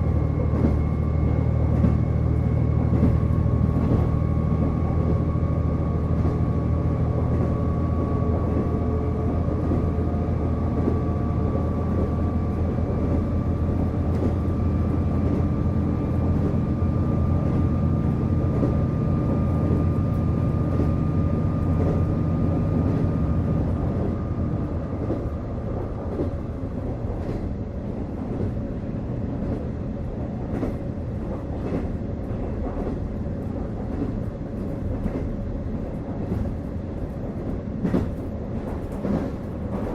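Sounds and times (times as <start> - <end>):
diesel engine whine: 0.0 - 26.6.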